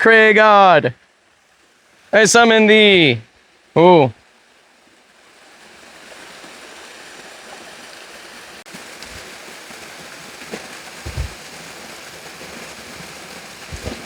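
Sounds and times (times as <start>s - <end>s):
creek water rushing: 0.2s - 14.0s
dull low thumps: 11.0s - 11.4s.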